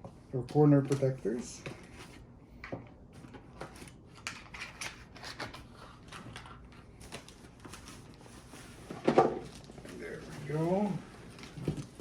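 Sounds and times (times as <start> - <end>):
cardboard packaging handled: 3.2 - 12.0.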